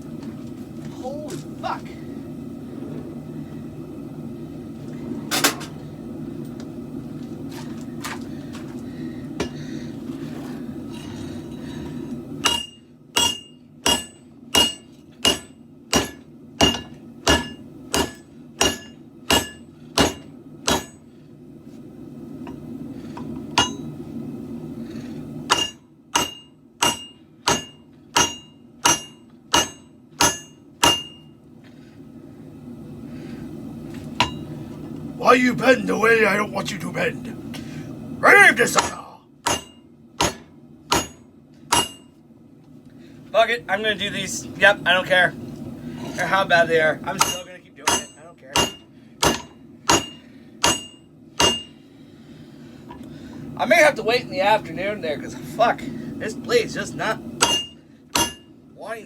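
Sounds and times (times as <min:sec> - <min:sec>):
hammer striking blade on anvil: 0:12.4 - 0:21.0, 0:23.6 - 0:23.9, 0:25.5 - 0:31.3, 0:34.2 - 0:34.4, 0:38.8 - 0:42.1, 0:47.1 - 0:51.8, 0:57.4 - 0:58.5.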